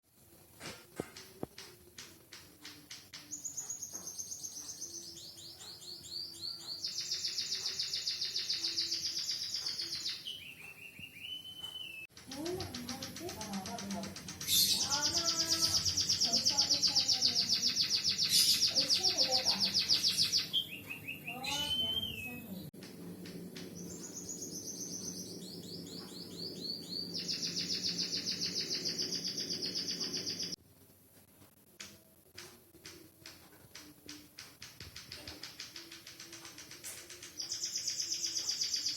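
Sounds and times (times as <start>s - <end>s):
bird singing high trill: 3.3s - 22.7s, 23.8s - 30.6s, 37.3s - 38.9s
steady low hum: 21.8s - 30.6s.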